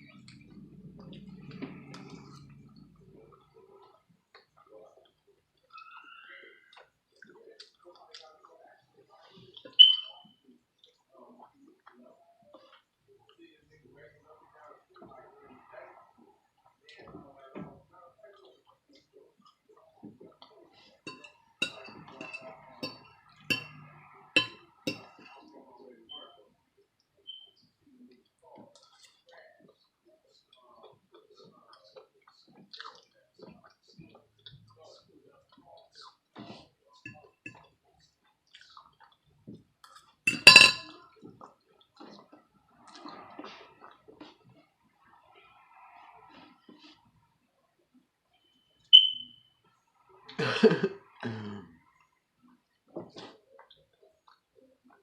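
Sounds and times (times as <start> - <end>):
small clicks of eating: 0.0 - 9.8, 28.0 - 40.2, 52.7 - 55.0
fork clinking against dish: 9.8 - 10.2, 21.1 - 25.3, 40.3 - 40.9.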